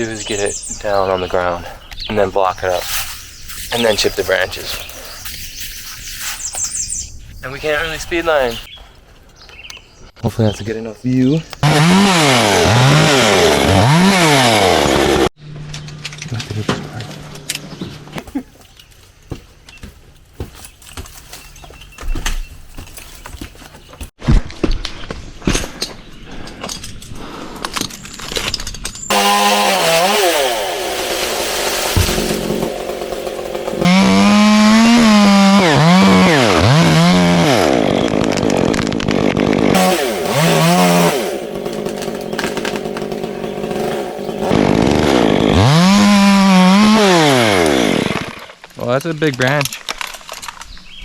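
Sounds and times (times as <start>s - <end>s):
chainsaw cutting wood: 11.6s - 15.4s, 29.0s - 48.7s.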